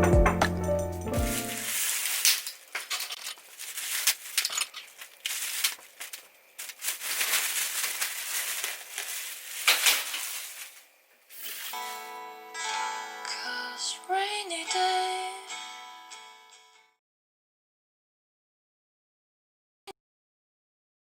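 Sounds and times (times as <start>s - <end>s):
rustling and crinkling: 1.2s - 12.0s
small clicks and scrapes: 1.8s - 10.8s.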